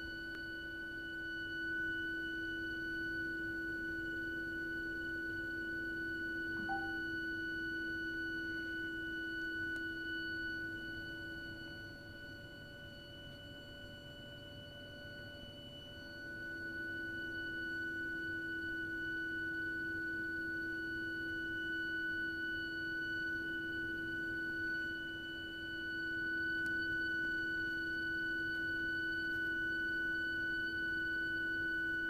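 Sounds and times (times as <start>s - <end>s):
high-pitched shrieking whistle: 6.6s - 7.1s
low hum: 6.6s - 7.1s.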